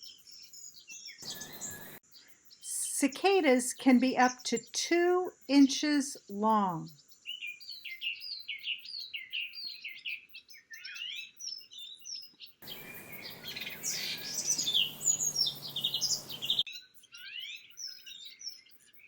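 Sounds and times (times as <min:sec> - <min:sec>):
songbirds chirping and singing: 0:00.0 - 0:05.2, 0:05.8 - 0:19.0
steady hiss: 0:12.6 - 0:16.6.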